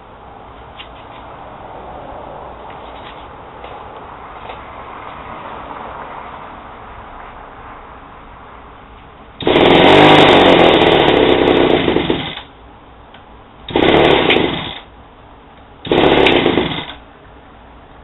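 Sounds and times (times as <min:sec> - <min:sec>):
two-stroke engine revving: 0:09.4 - 0:12.5, 0:13.7 - 0:14.9, 0:15.8 - 0:17.0.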